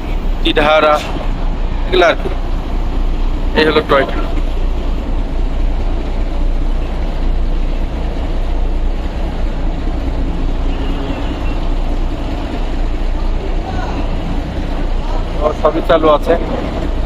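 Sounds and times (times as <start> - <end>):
locomotive engine rumbling: 0.0 - 17.0.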